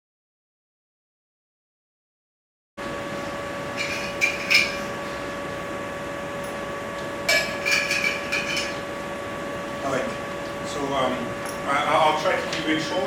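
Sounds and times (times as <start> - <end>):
electrical hum: 2.8 - 13.0.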